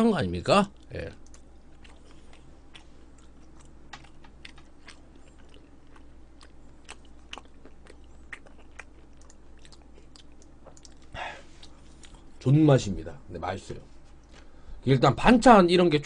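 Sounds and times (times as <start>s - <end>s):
person chewing food: 0.7s - 12.4s.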